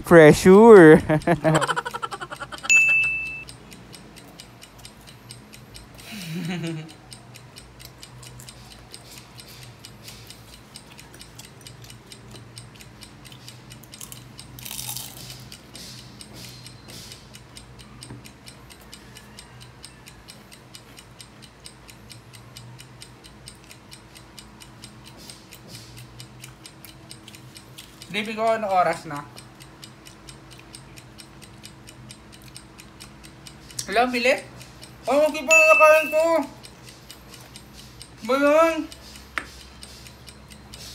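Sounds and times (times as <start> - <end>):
steady low hum: 0.0 - 18.8
clock ticking fast: 0.0 - 40.9.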